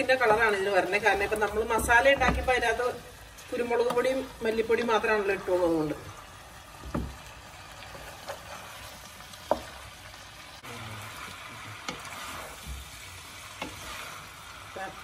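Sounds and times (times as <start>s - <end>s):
meat sizzling in a pot: 0.0s - 15.0s
spatula knocking on pot: 1.6s - 2.8s.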